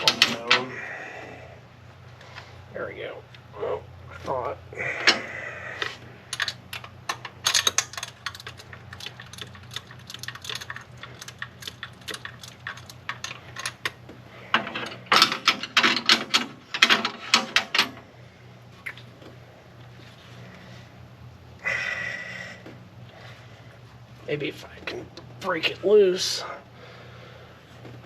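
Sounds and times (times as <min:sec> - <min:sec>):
ratchet wrench clicking: 0:06.3 - 0:06.6, 0:07.4 - 0:14.0.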